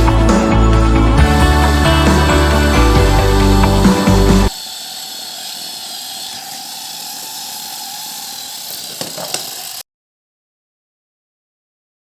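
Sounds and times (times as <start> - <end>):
toy motor and gears whirring: 1.2 - 9.8.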